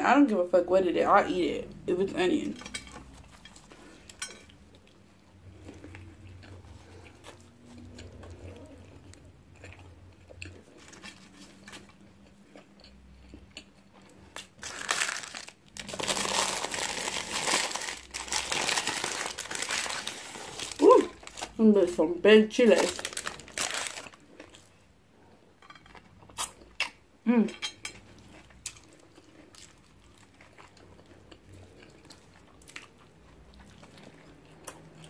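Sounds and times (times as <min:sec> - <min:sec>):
chewing: 0:02.9 - 0:14.7, 0:28.0 - 0:35.0
paper bag crinkling: 0:14.6 - 0:21.6, 0:22.6 - 0:24.2.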